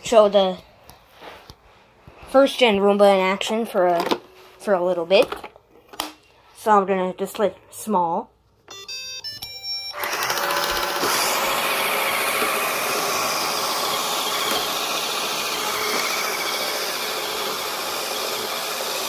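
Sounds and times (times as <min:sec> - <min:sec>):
robot vacuum whirring: 0:09.9 - 0:19.0.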